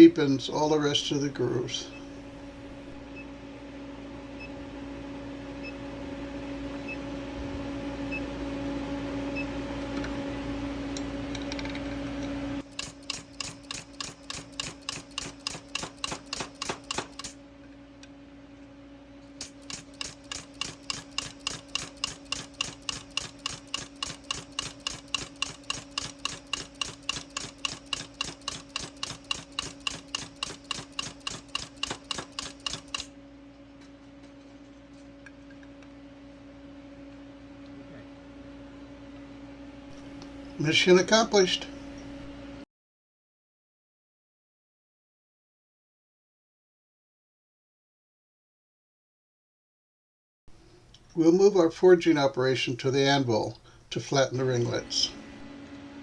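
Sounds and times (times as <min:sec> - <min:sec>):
induction forge humming: 0:00.0 - 0:42.6, 0:54.3 - 0:56.0
power hammer striking metal: 0:12.6 - 0:17.4, 0:19.4 - 0:33.1.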